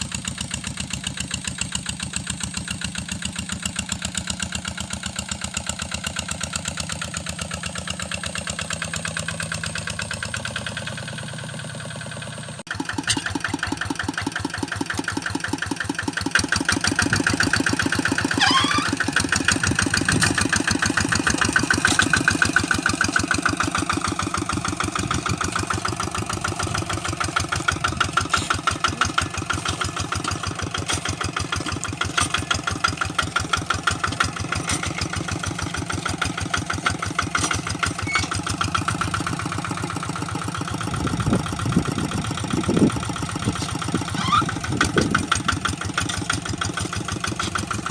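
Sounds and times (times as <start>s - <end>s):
hand tractor engine pulsing: 12.7s - 47.9s.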